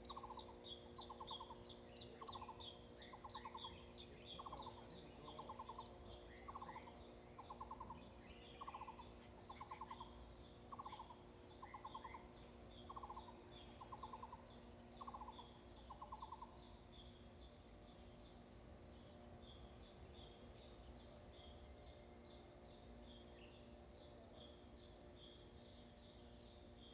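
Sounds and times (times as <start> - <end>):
bird low call with rattling trill: 0.0 - 16.8
small birds chirping: 0.0 - 26.9.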